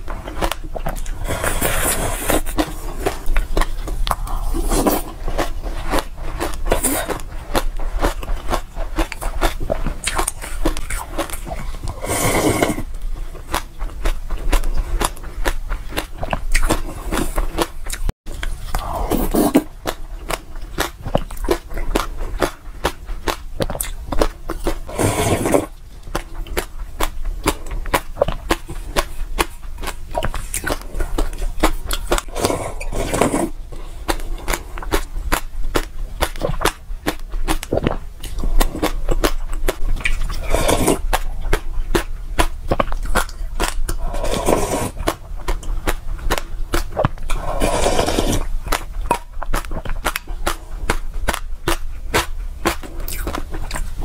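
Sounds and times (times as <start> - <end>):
mouth crackling clicks eating: 0.0 - 54.0
fuller mouth noise: 0.3 - 54.0
person sipping liquid: 11.5 - 12.9, 18.5 - 19.7, 24.9 - 25.8, 32.3 - 33.6, 40.3 - 41.1, 43.9 - 45.1, 47.3 - 48.5.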